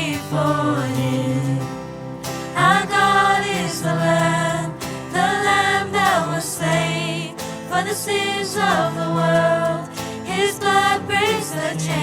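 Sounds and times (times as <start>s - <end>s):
choir singing a worship song: 0.0s - 12.0s
instrumental accompaniment: 0.1s - 12.0s.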